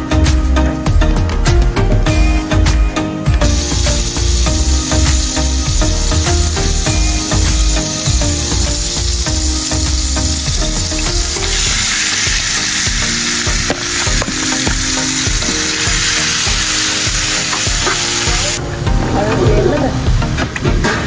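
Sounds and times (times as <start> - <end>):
background music with beat: 0.0 - 21.0
butter sizzling in a pan: 3.4 - 18.6
chicken sizzling in a pan: 3.4 - 18.6.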